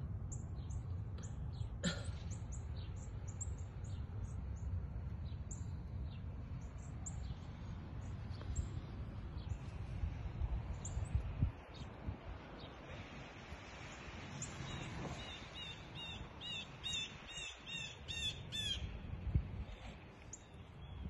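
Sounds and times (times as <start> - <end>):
steady low rumble: 0.0 - 12.7.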